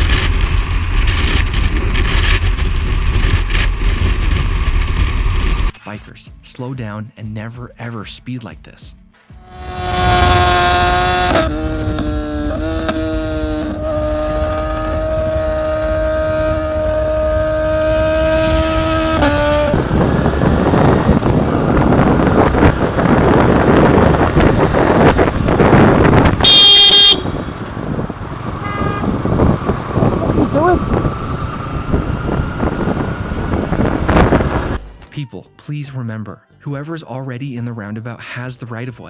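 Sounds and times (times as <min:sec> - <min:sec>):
motorcycle riding fast: 0:00.0 - 0:05.7, 0:09.4 - 0:35.1
shrill horn blast: 0:09.4 - 0:32.0
vehicle horn held: 0:26.4 - 0:29.4.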